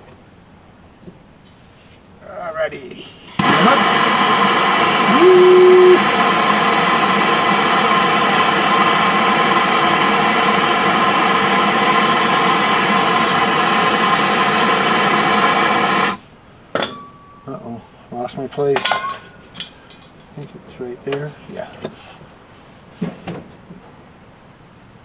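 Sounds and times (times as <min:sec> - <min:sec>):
power drill boring through metal: 0:03.4 - 0:16.2.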